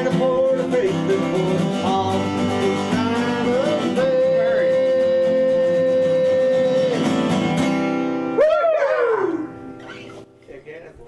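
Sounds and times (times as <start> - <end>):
country song on acoustic guitar: 0.0 - 8.4.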